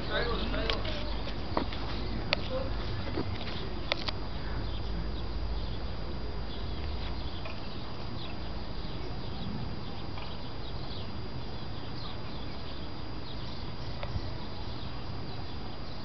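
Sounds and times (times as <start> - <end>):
birds chirping: 0.0 - 16.0
outdoor background noise: 0.0 - 16.0.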